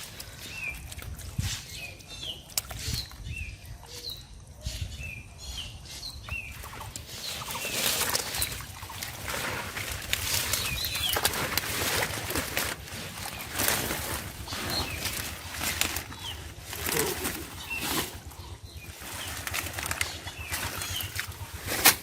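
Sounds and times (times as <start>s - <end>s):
rustling plants: 0.0s - 4.3s, 6.4s - 22.0s
splashing water: 6.5s - 22.0s.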